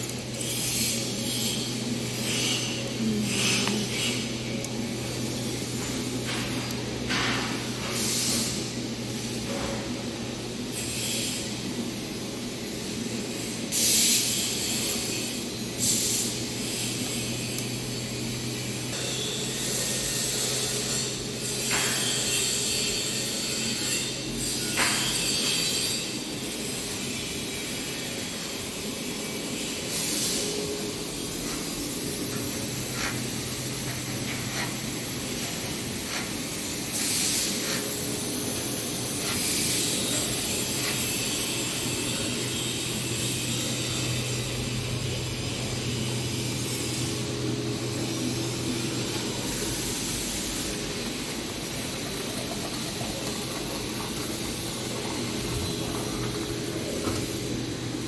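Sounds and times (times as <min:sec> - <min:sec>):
extrusion machine hum: 0:29.5 - 0:58.0.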